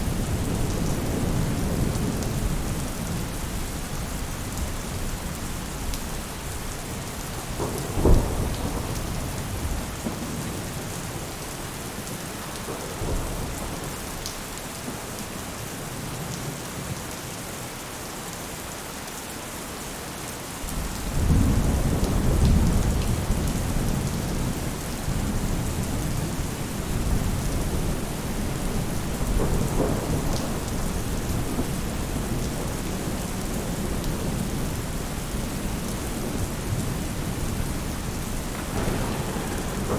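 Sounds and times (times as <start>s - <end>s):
low thunder rumble: 0.0s - 11.3s, 20.7s - 39.9s
rain on a roof: 0.0s - 39.9s
thunder clap: 7.4s - 10.6s, 25.3s - 34.4s, 36.2s - 39.9s.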